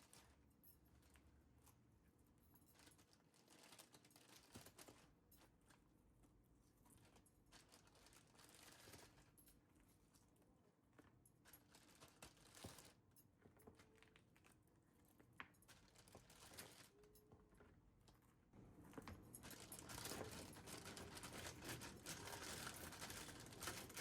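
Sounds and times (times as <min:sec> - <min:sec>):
faint rustling: 0:13.6 - 0:24.0.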